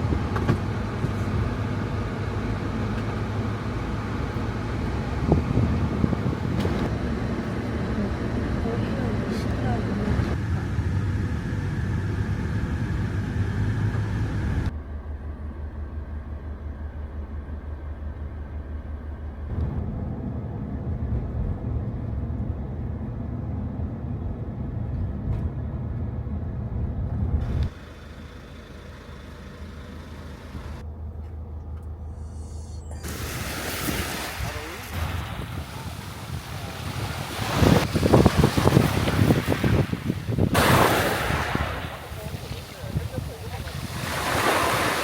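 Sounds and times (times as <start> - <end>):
vehicle engine and road noise: 0.0 - 45.0.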